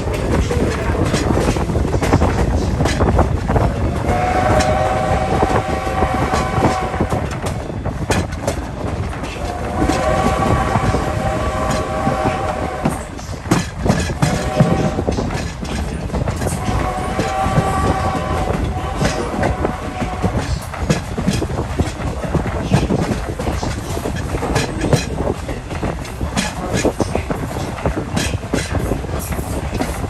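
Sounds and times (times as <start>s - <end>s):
coach rumbling: 0.0s - 30.0s
wheels clicking over rail joints: 0.0s - 30.0s
steam whistle blasts: 4.0s - 7.4s, 9.6s - 13.0s, 16.5s - 20.3s.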